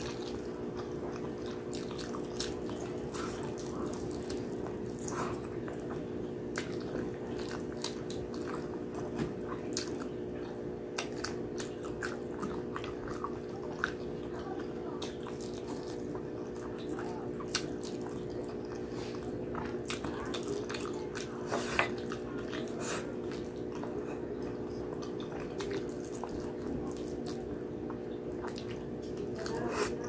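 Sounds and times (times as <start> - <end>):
person chewing wetly: 0.0 - 30.0.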